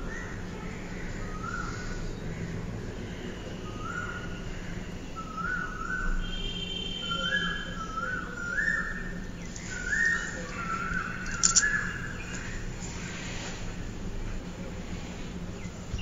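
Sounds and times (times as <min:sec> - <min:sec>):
steady low hum: 0:07.0 - 0:16.0
sharp click: 0:11.2 - 0:11.8.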